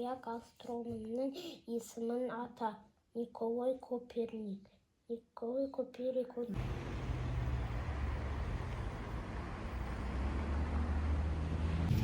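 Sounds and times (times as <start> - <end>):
engine running: 6.6 - 12.0.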